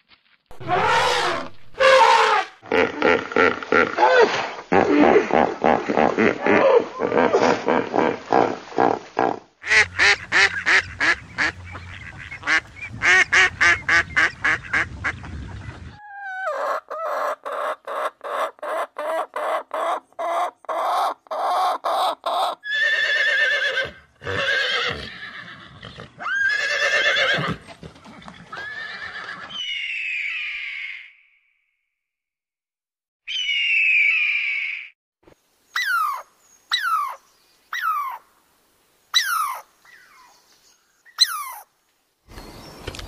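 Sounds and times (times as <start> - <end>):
ducks calling: 9.6 - 22.6
hen clucking: 9.6 - 22.6
eagle screeching: 28.6 - 31.1, 33.3 - 34.9, 35.8 - 36.2, 39.2 - 39.6, 41.2 - 41.6.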